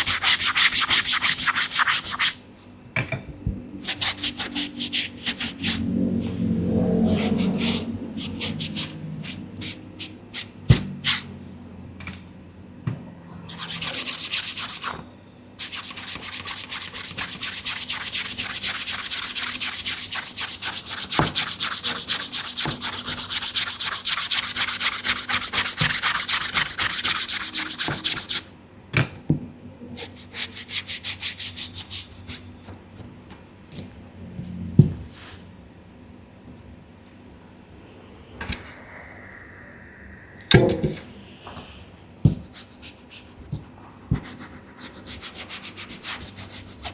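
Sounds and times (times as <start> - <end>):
brush scrubbing a sneaker: 13.5 - 14.9, 15.6 - 28.4.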